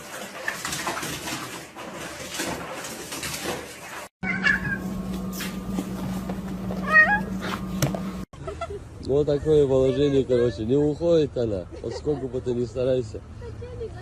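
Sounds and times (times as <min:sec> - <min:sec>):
cat meowing: 0:04.2 - 0:04.9, 0:06.8 - 0:07.3.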